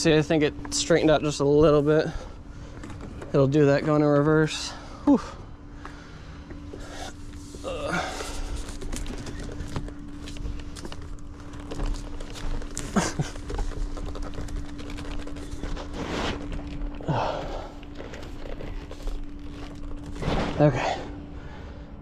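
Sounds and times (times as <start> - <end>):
steady low hum: 0.0 - 22.0
person breathing hard: 4.7 - 8.8, 17.0 - 18.4.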